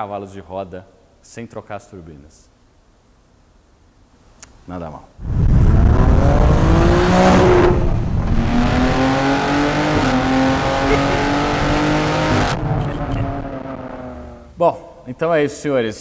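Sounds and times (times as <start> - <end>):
car engine accelerating hard: 5.4 - 14.6.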